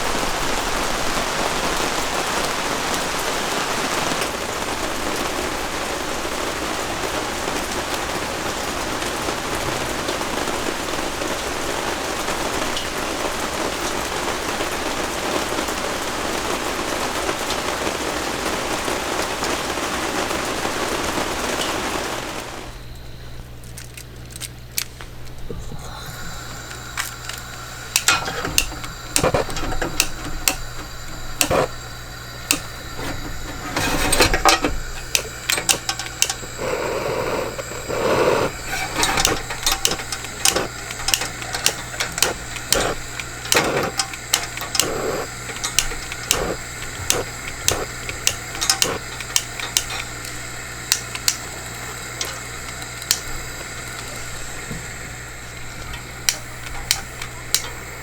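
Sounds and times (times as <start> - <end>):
faint steady hum: 0.0 - 58.0
sharp clicks and light knocks: 23.6 - 58.0.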